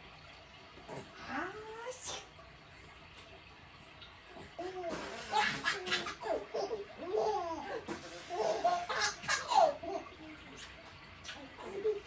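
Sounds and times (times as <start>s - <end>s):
toddlers laughing: 4.6s - 10.2s
toddlers babbling: 11.5s - 12.0s.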